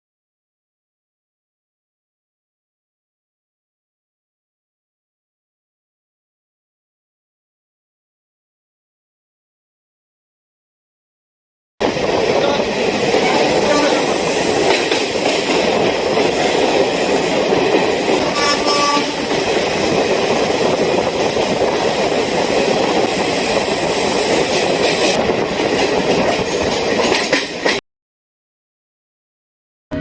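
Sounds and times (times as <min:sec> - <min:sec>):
train rumbling and rattling: 0:11.8 - 0:27.8.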